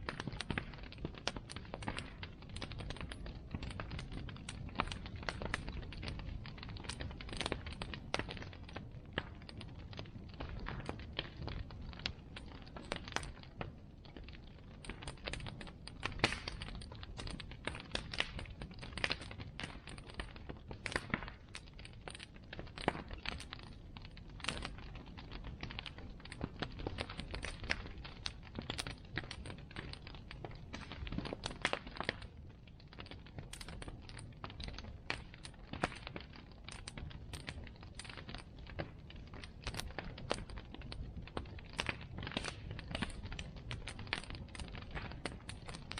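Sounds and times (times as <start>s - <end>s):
bonfire crackling and popping: 0.0s - 45.9s.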